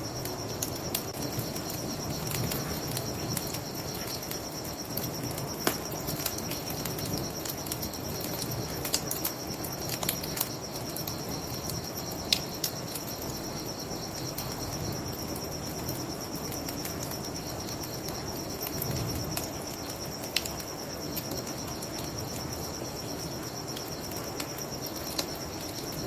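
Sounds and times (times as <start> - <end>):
crickets trilling: 0.0 - 26.0
bonfire crackling and popping: 0.2 - 13.2, 16.4 - 22.4.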